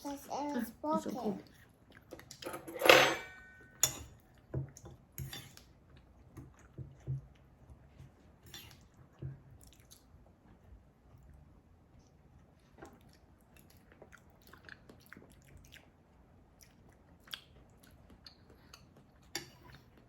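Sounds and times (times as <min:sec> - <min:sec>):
chewing and crunching crackers: 0:08.8 - 0:20.0.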